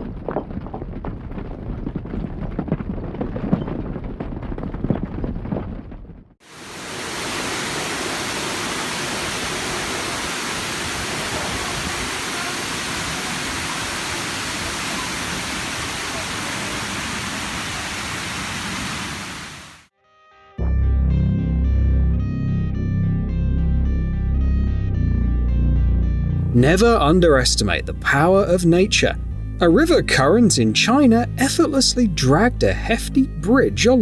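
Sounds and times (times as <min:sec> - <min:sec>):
steady rushing noise: 0:06.4 - 0:19.9.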